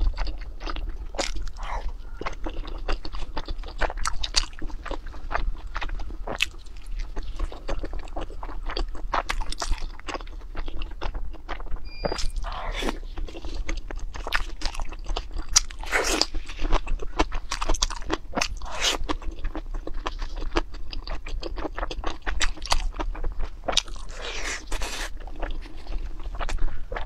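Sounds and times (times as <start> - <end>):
crisp food crunching: 0.0 - 27.0.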